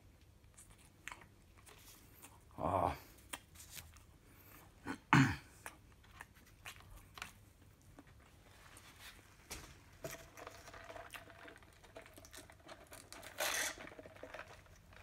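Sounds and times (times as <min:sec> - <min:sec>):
mouth chewing: 0:00.4 - 0:04.8, 0:05.5 - 0:08.4.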